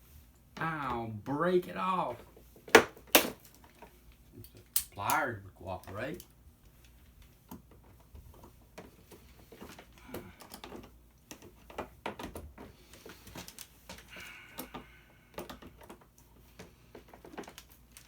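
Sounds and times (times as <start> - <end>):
pliers clicking on plastic: 4.4 - 5.2.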